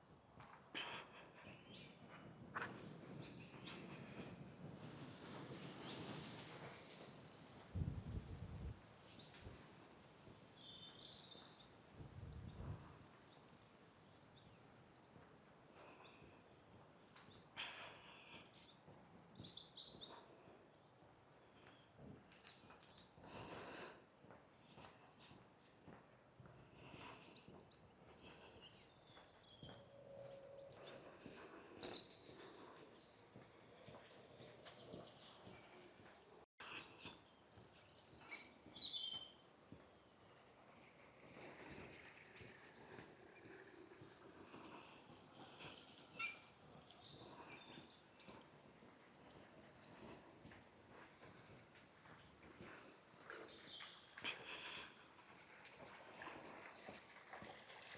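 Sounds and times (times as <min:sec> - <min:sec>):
distant birdsong: 0:00.0 - 0:04.6, 0:26.6 - 0:55.1.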